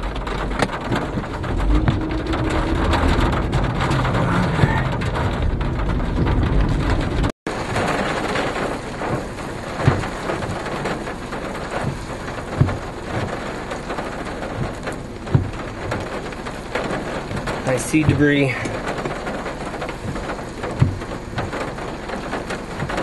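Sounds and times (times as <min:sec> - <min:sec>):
low thumps: 0:00.0 - 0:07.3, 0:14.5 - 0:16.2
rain and wind hiss: 0:00.0 - 0:23.0.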